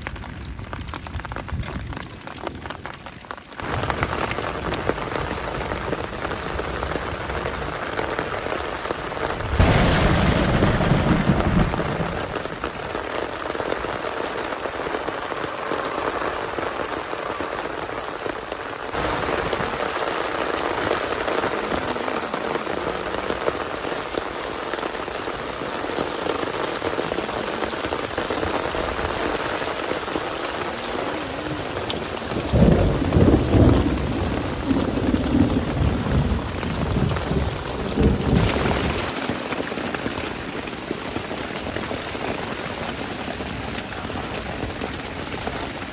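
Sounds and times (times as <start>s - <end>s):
steady rain falling: 0.0s - 45.9s
low rumbling: 9.0s - 19.7s.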